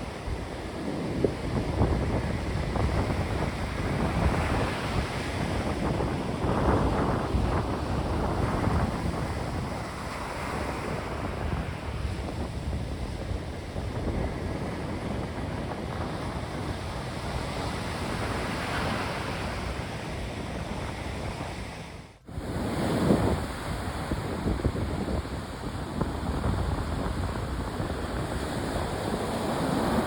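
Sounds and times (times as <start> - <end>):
surf washing on shore: 0.0 - 30.0
wind buffeting microphone: 0.0 - 30.0.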